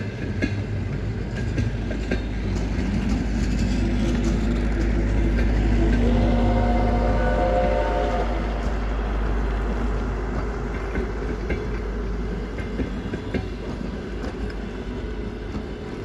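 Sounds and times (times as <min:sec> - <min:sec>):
wheel clicks on rail joints: 0:00.0 - 0:07.1, 0:08.5 - 0:16.0
train coaches rumbling: 0:00.0 - 0:16.0
higher tones: 0:05.7 - 0:10.7.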